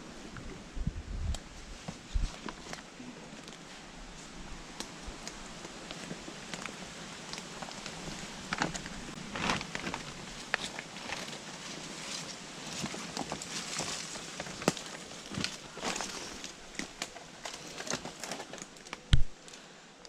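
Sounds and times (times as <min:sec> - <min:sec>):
footsteps through dry undergrowth: 0:01.5 - 0:18.3
twigs snapping: 0:12.8 - 0:19.6.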